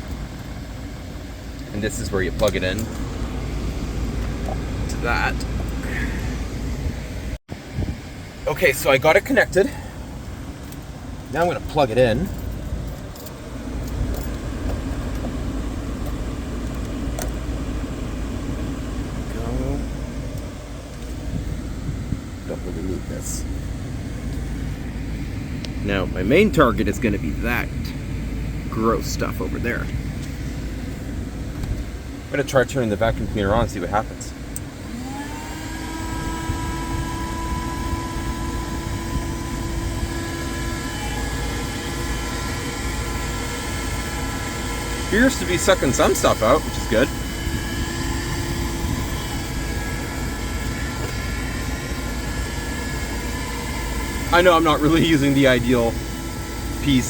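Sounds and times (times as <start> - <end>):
car engine idling: 0.0 - 35.3, 37.8 - 57.0
vacuum cleaner motor whine: 34.8 - 57.0.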